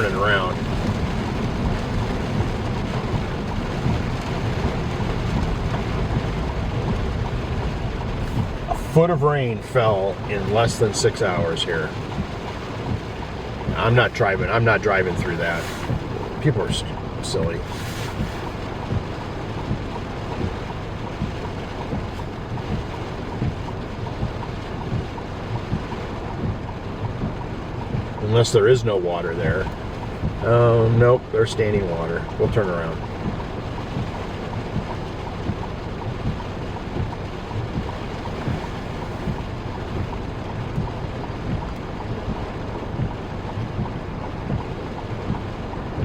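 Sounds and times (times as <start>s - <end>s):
car rumble on wet road: 0.0s - 46.0s
small low knocks: 12.1s - 13.8s, 18.2s - 28.2s, 29.6s - 30.4s, 33.1s - 46.0s.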